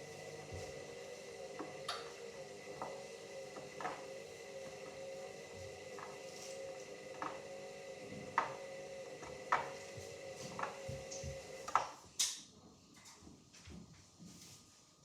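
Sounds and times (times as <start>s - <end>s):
washing machine motor whine: 0.0s - 12.1s
water and laundry swish: 5.1s - 7.6s.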